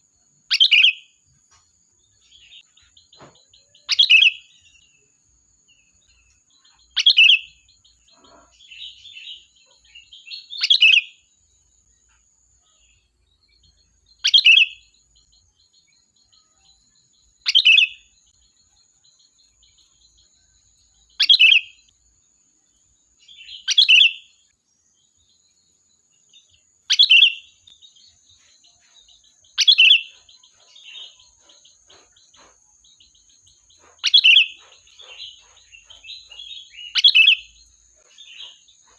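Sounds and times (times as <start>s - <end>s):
bird calling: 21.1s - 21.9s, 26.9s - 27.7s, 28.3s - 38.9s.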